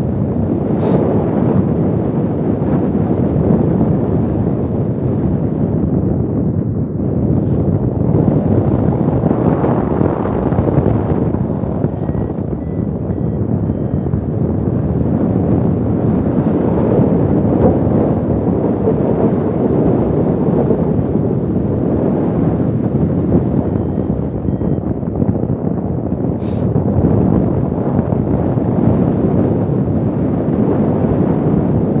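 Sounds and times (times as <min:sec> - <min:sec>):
high variometer beeps: 0:11.9 - 0:14.2, 0:23.6 - 0:25.0.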